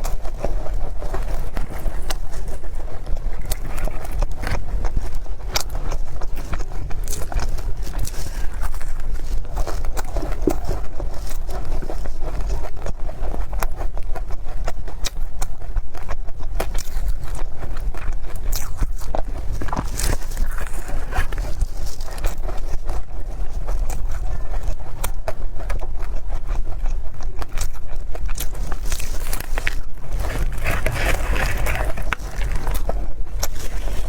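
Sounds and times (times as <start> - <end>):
wet chewing: 0.0 - 34.0
steady low rumble: 26.7 - 34.0.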